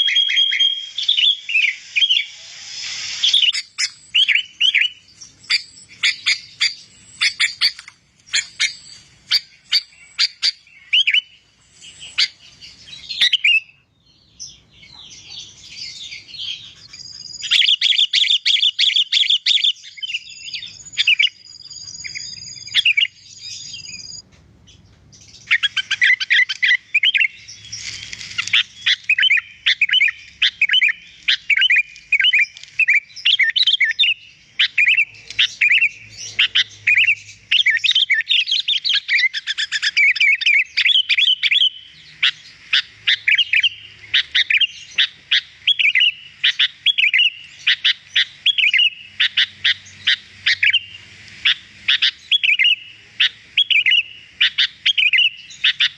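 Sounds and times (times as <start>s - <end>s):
bulbul singing: 0.0s - 55.9s.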